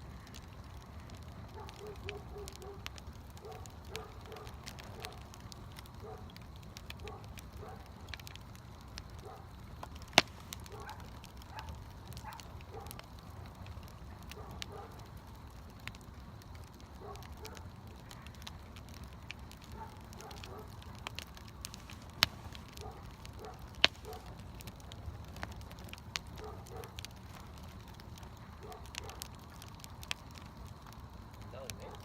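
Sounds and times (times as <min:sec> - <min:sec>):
campfire crackling: 0:00.0 - 0:32.0
loud sharp pop of fire: 0:09.8 - 0:12.4.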